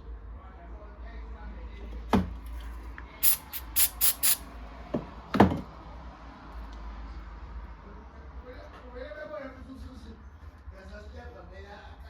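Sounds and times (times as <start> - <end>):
aerosol spray hisses: 3.2 - 4.4
knocks: 5.0 - 5.7.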